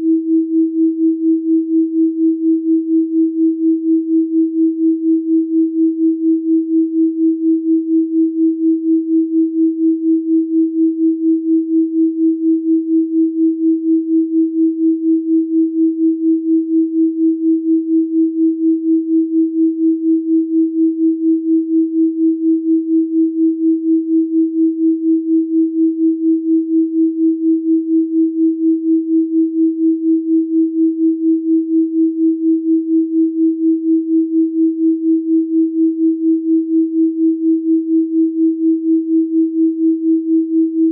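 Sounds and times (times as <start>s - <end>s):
pulsing sine tone: 0.0s - 40.9s.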